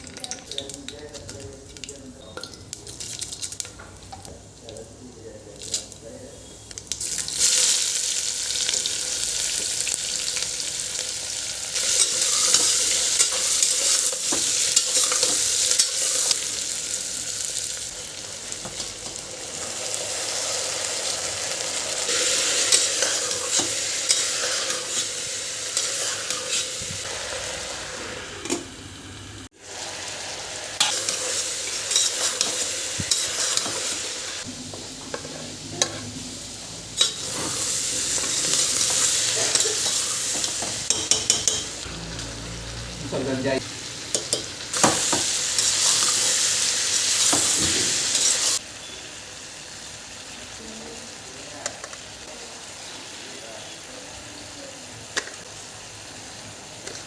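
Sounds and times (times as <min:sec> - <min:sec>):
food sizzling in hot oil: 0:05.2 - 0:57.0
spatula scraping a pan: 0:22.2 - 0:26.9.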